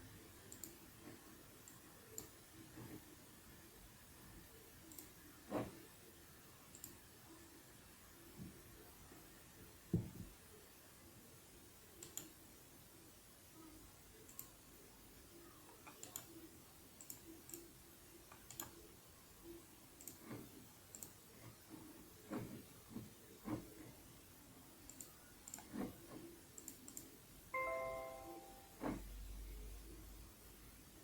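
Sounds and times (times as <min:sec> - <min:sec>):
faint clicks and ticks: 0:00.4 - 0:03.2, 0:04.8 - 0:05.9, 0:06.6 - 0:07.2, 0:11.9 - 0:12.4, 0:13.8 - 0:14.7, 0:15.6 - 0:24.2, 0:24.8 - 0:27.4.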